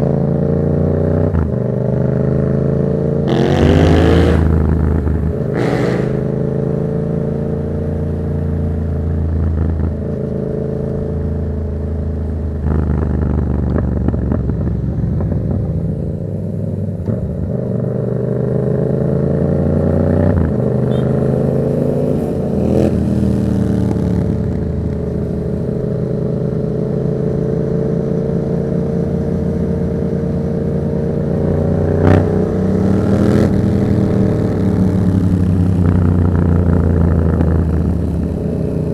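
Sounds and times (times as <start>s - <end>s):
motorcycle engine revving through gears: 0.0s - 9.9s, 30.6s - 38.9s.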